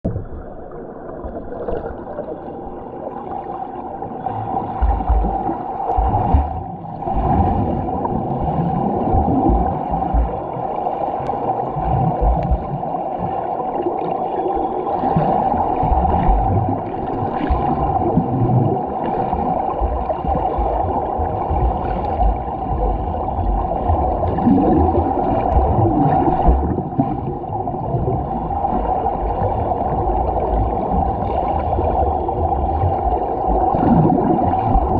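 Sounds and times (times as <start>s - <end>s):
low underwater thumps: 0.0s - 0.6s, 4.8s - 10.5s, 11.8s - 12.8s, 15.8s - 28.2s
muffled churning water: 0.0s - 34.9s.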